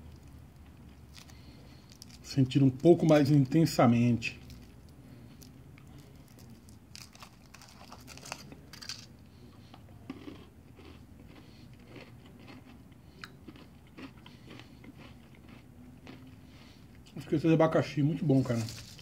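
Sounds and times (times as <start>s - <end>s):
chewing and crunching: 0.0s - 3.4s, 4.4s - 17.2s, 18.3s - 19.0s
foil wrapper crackling: 6.0s - 9.1s, 18.3s - 19.0s.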